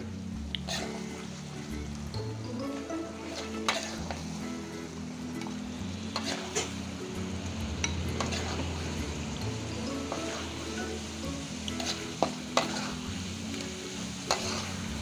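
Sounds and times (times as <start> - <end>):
food sizzling in wok: 0.0 - 15.0
metal spatula scraping wok: 0.6 - 1.6, 2.7 - 7.2, 7.8 - 15.0
spatula clinking against pan: 3.2 - 4.2, 6.1 - 6.8, 7.8 - 8.7, 11.7 - 13.0, 14.2 - 14.8.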